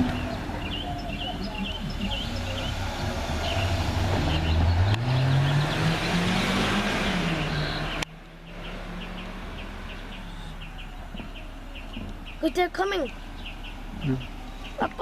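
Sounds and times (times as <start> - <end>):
vehicle accelerating past: 0.0 - 11.9
birds chirping faintly: 0.0 - 15.0.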